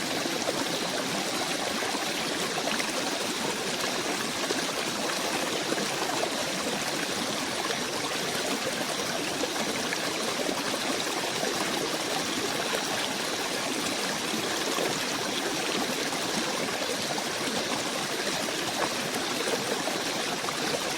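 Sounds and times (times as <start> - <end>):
stream water rushing: 0.0 - 20.9.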